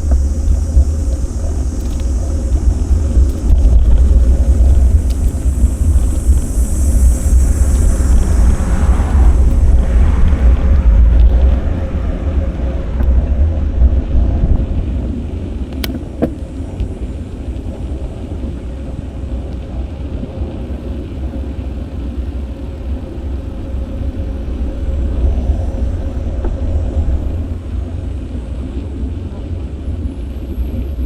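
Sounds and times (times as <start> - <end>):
road traffic: 0.0 - 31.0
wind rumbling on microphone: 0.0 - 31.0
sharp click: 15.8 - 16.4.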